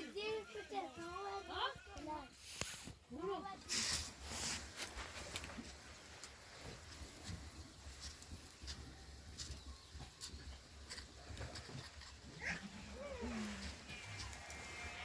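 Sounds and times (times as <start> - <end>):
faint animal sounds: 11.3 - 15.0.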